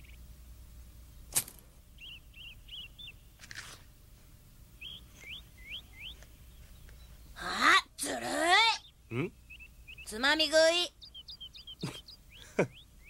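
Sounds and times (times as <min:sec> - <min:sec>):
small birds chirping: 0:00.0 - 0:13.0
tomato snapping off vine: 0:01.3 - 0:01.6.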